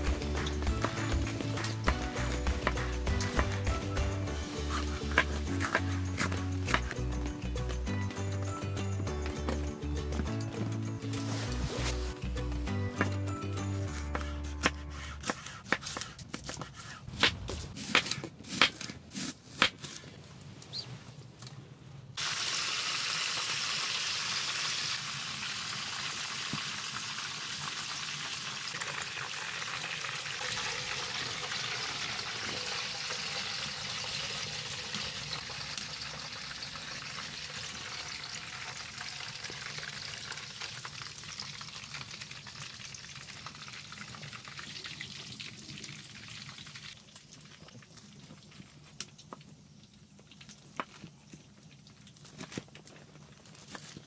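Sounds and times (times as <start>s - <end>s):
food sizzling in a pan: 22.2s - 46.8s.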